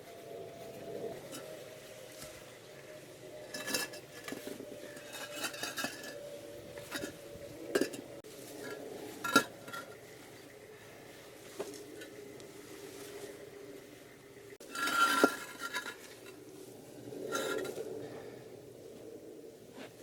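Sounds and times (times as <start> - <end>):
concrete blocks clinking and knocking: 3.5 - 10.0, 14.6 - 16.4.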